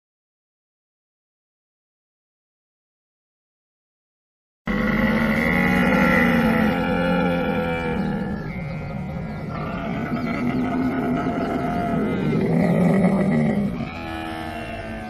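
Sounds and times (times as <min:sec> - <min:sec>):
camel bellowing: 0:04.7 - 0:15.0.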